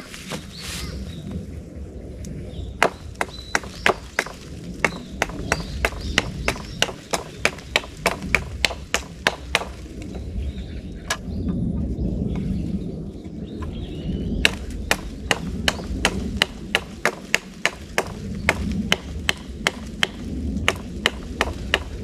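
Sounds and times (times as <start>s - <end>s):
hatchet chopping wood: 2.8s - 9.8s, 14.4s - 22.0s.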